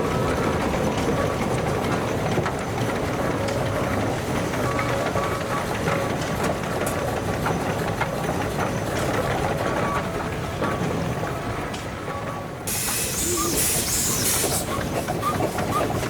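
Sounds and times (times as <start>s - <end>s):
steam engine rumbling: 12.6s - 16.0s.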